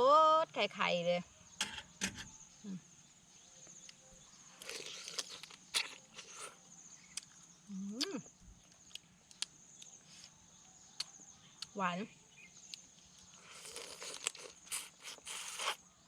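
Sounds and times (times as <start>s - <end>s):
chewing and crunching crab: 4.6s - 7.5s, 12.6s - 16.0s.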